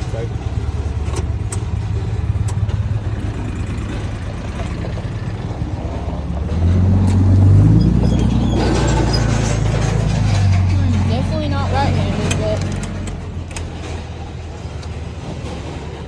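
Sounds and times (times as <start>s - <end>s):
vehicle engine revving: 0.0s - 16.0s.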